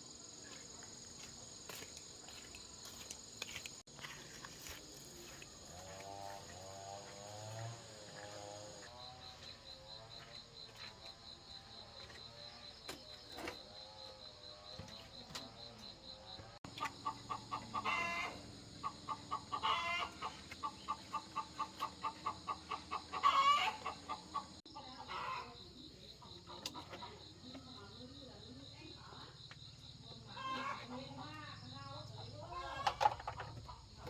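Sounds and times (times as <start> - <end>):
chickens clucking: 16.7 - 25.6.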